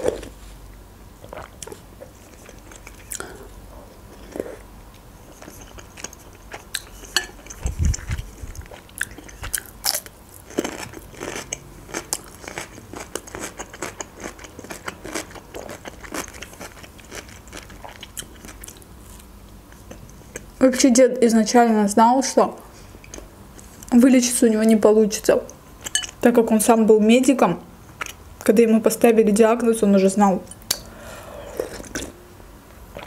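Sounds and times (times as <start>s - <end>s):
person chewing: 1.2s - 20.5s, 30.6s - 32.2s.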